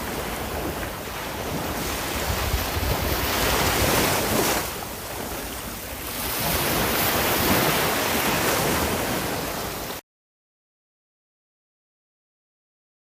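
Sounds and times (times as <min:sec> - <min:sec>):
sea waves breaking on shore: 0:00.0 - 0:10.0.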